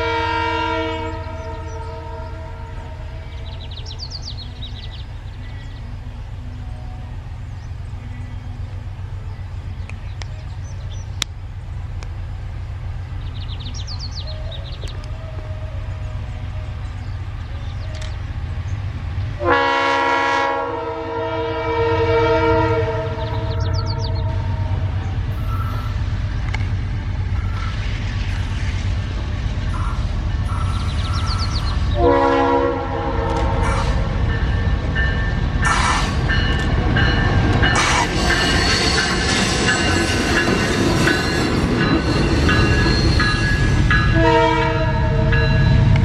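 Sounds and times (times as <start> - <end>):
locomotive air horn chord: 0.0 - 7.5, 19.4 - 26.0, 29.7 - 34.6, 44.0 - 45.9
diesel locomotive rumbling: 0.0 - 46.0.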